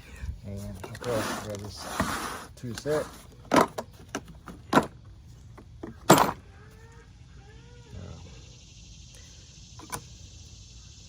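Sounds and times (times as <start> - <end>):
objects knocking and clattering: 3.4 - 5.0, 5.6 - 6.4
bird chirping: 5.3 - 11.0.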